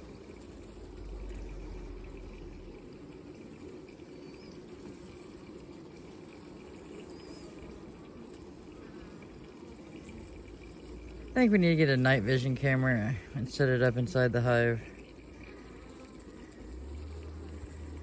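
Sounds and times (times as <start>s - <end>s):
honeybees buzzing: 0.0s - 18.0s
faint chirps: 7.0s - 7.8s.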